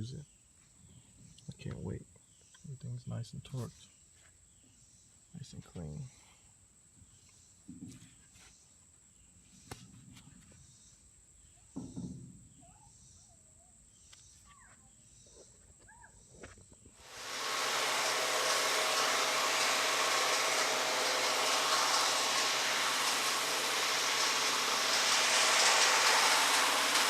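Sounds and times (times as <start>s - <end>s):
wood chipper engine running: 17.0s - 27.0s.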